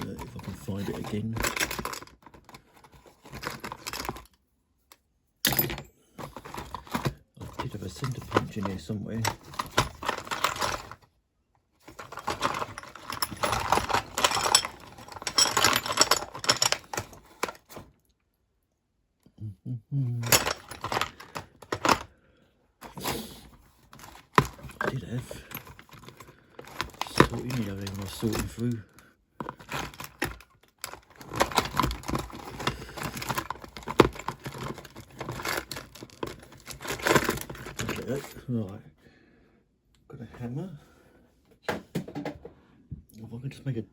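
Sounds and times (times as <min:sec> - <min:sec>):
tools rattling and clinking: 0:00.0 - 0:04.4, 0:05.4 - 0:11.0, 0:11.8 - 0:17.8, 0:20.2 - 0:22.1, 0:23.9 - 0:38.5
metal hand tools clattering: 0:12.0 - 0:17.2.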